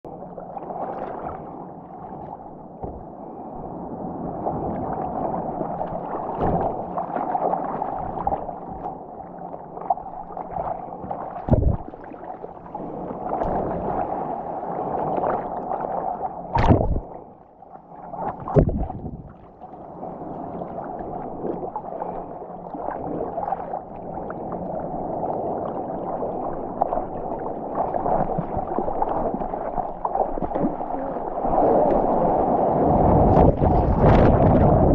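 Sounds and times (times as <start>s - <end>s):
muffled water rushing and gurgling: 0.0s - 34.9s
sharp splashes: 16.6s - 17.1s.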